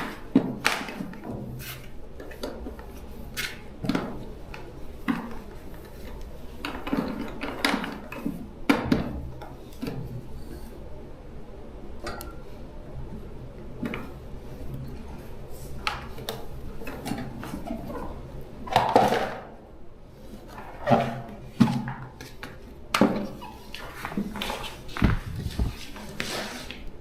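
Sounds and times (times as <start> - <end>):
faint low hum: 24.9 - 26.2.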